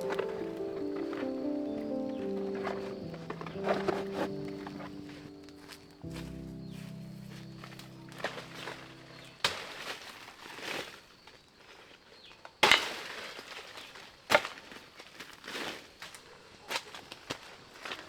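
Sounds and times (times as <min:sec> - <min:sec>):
background music: 0:00.0 - 0:09.5
soft rustling or scraping: 0:00.0 - 0:11.0.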